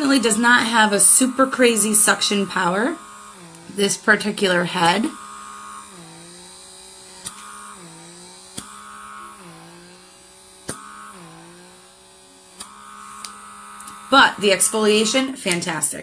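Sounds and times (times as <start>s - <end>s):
suction motor humming: 0.0s - 16.0s
sharp clicks: 7.2s - 7.6s, 12.6s - 14.0s.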